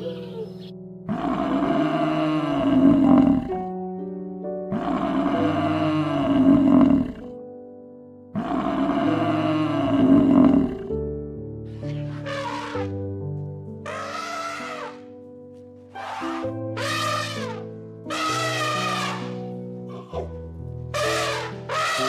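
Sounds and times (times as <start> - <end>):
background music: 0.0 - 22.0
big cat roaring: 1.1 - 3.6, 4.7 - 7.3, 8.4 - 10.9, 11.8 - 13.0, 13.9 - 15.1, 16.0 - 20.3, 21.0 - 22.0.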